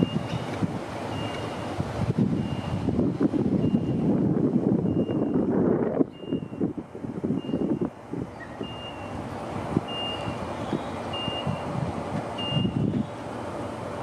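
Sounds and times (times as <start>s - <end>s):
high-pitched warning beeps: 0.0s - 0.5s, 1.1s - 1.8s, 2.4s - 2.8s, 3.6s - 4.0s, 4.9s - 5.5s, 6.1s - 6.6s, 7.4s - 9.2s, 9.9s - 10.4s, 11.1s - 11.7s, 12.4s - 12.9s.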